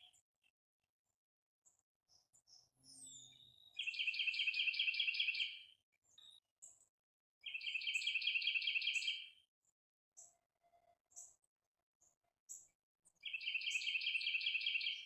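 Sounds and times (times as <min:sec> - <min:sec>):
songbird singing chirped notes: 0:02.1 - 0:06.8, 0:07.4 - 0:09.4, 0:13.2 - 0:15.0.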